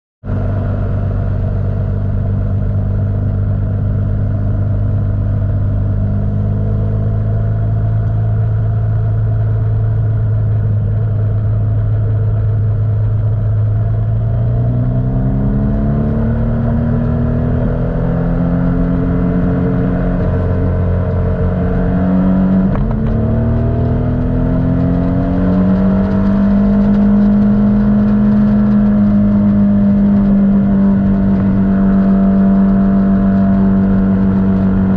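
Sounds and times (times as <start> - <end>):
motorcycle engine accelerating: 0.3 - 34.9.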